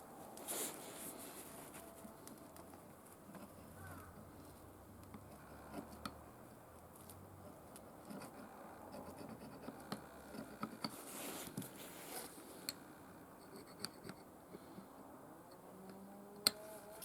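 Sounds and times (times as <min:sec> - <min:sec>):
faint scratching: 0:00.2 - 0:12.8.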